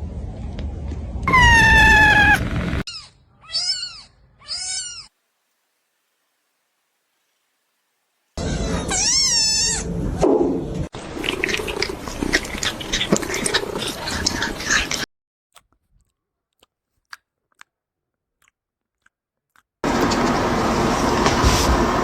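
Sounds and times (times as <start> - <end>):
kitten meowing: 1.3 - 5.1.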